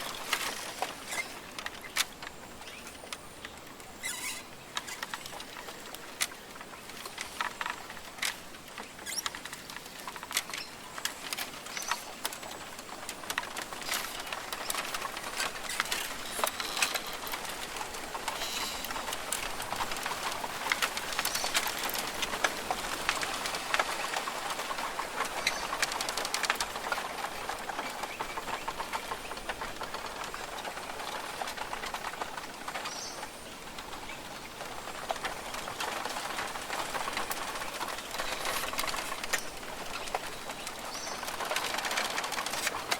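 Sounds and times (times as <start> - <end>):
sharp clicks and crackles: 0.0 - 42.9
steady hiss: 0.0 - 42.9
birds calling: 34.0 - 42.6.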